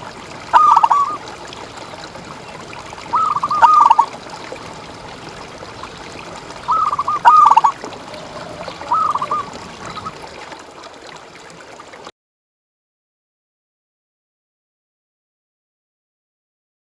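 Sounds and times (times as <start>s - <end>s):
trickle of water: 0.0s - 12.1s
dove cooing: 0.5s - 1.2s, 3.1s - 4.2s, 6.5s - 10.4s.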